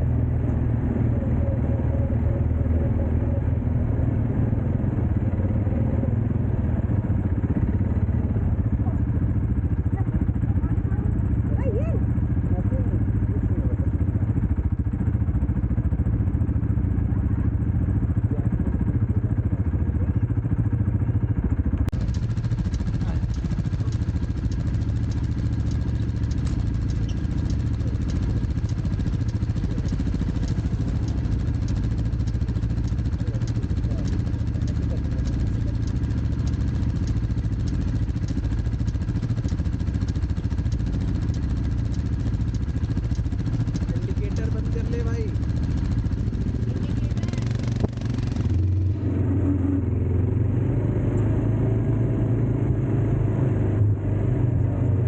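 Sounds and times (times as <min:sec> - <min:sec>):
dirt bike engine: 0:00.0 - 0:54.6
light ticking: 0:21.7 - 0:48.3.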